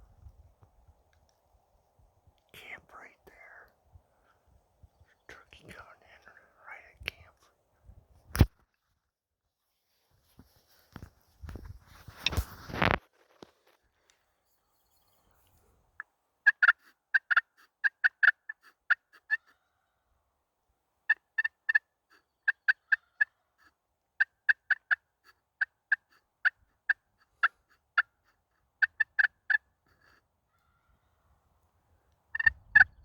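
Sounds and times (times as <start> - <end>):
turkey yelping: 16.4 - 19.7, 21.1 - 29.7.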